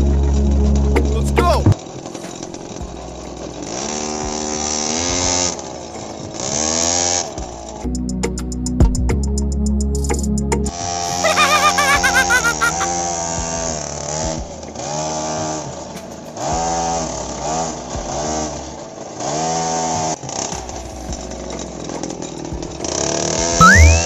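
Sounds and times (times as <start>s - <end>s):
small engine revving: 1.7s - 7.8s, 12.4s - 21.3s.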